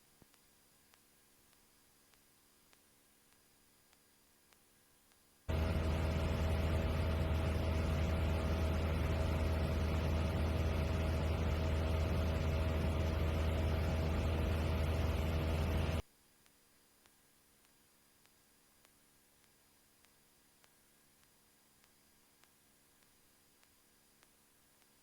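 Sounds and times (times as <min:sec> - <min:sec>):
light airplane engine drone: 0:05.5 - 0:16.0.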